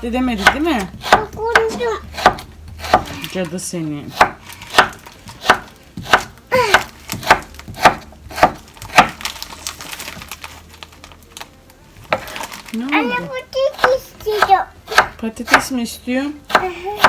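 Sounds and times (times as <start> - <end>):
knife chopping potatoes: 0.0 - 9.3, 13.2 - 15.8, 16.4 - 17.0.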